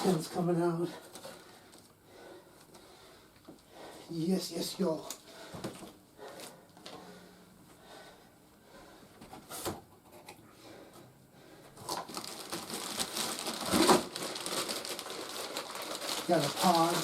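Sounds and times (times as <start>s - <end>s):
packaging rustling: 11.8s - 17.0s
plastic crinkling: 11.8s - 17.0s.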